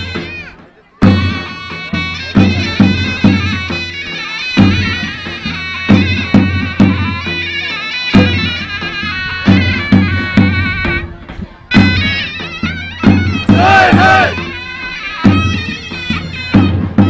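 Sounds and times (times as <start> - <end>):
heavy drum beats: 0.0 - 17.0
shrill reedy wind instrument: 0.0 - 17.0.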